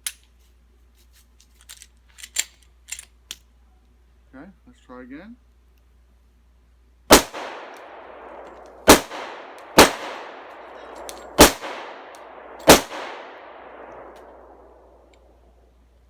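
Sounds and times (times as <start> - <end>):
pistol shots with ringing echo: 7.1 - 15.0.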